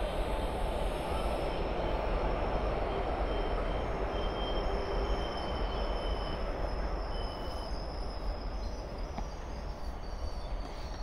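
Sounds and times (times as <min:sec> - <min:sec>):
train rumble: 0:00.0 - 0:11.0
high squeal: 0:02.9 - 0:10.9.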